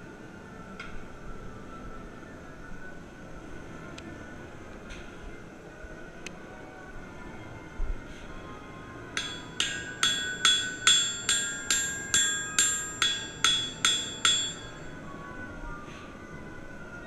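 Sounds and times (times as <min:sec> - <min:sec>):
hammer striking steel: 0:09.2 - 0:14.9.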